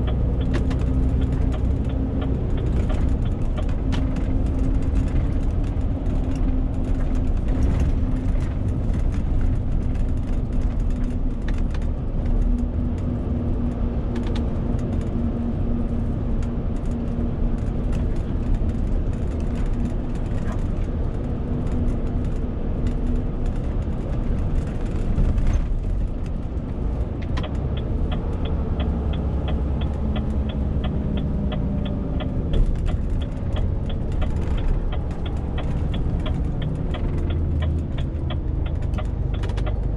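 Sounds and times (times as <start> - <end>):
diesel truck engine rumble: 0.0 - 39.9
road noise: 0.0 - 39.9
fast regular ticking: 27.4 - 39.9.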